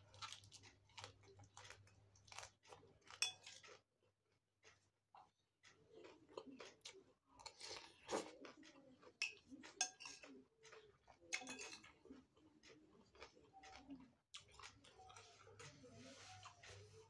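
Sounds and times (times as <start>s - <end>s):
chewing and crunching: 0.0s - 17.0s
metal spoon scraping a plate: 9.2s - 10.2s, 11.3s - 11.8s.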